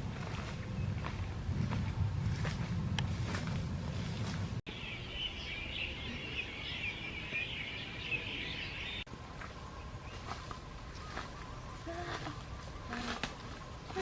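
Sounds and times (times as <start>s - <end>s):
low rumbling noise: 0.0s - 7.2s
small birds twittering: 4.7s - 14.0s.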